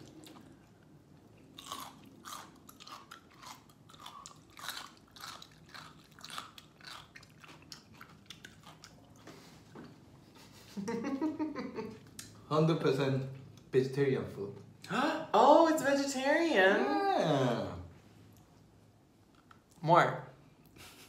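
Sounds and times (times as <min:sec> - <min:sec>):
crunchy chewing: 0:00.0 - 0:09.4.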